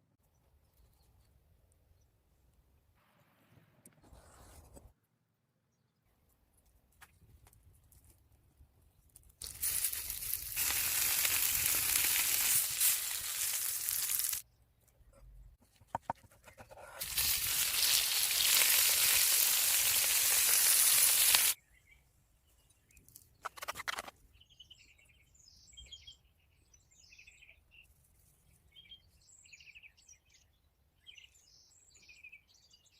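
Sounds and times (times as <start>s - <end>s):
food sizzling in a pan: 9.4s - 14.4s, 17.0s - 21.6s.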